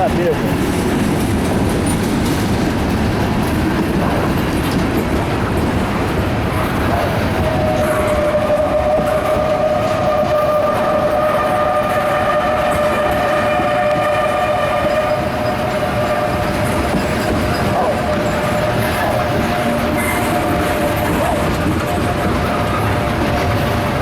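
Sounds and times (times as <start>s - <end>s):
freight train rolling past: 0.0s - 24.0s
train wheel clatter: 0.0s - 24.0s
long steady horn tone: 7.8s - 21.1s.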